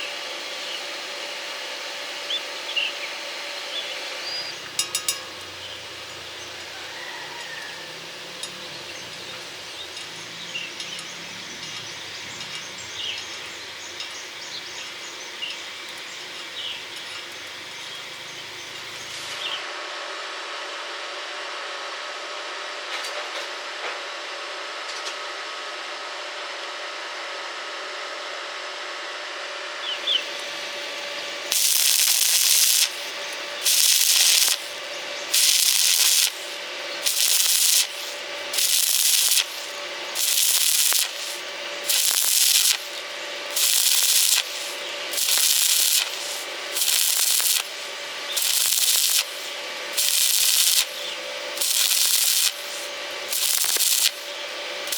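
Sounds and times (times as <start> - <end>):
faint hum: 0.0 - 54.9
welding arc crackling: 30.1 - 54.9.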